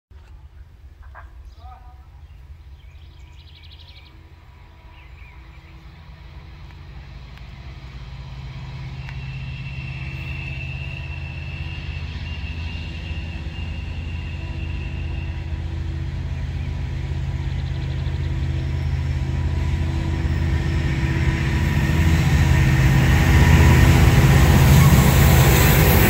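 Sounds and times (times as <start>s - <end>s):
diesel locomotives rumbling: 0.3s - 26.0s
bird chirping: 1.0s - 6.4s
high-pitched whine: 3.2s - 26.0s.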